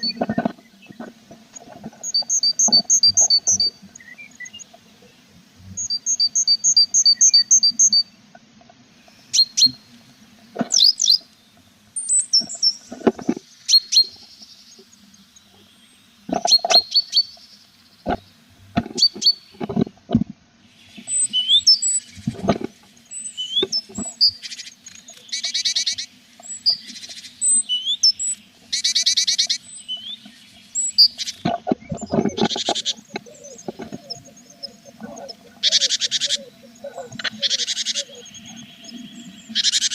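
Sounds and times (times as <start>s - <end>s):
buzzy pulsed bird calls: 0.0s - 1.2s, 1.9s - 8.2s, 9.0s - 19.7s, 20.6s - 39.9s
nestlings chirping: 2.0s - 4.7s, 23.0s - 39.9s
birds knocking inside nest box: 31.4s - 34.3s.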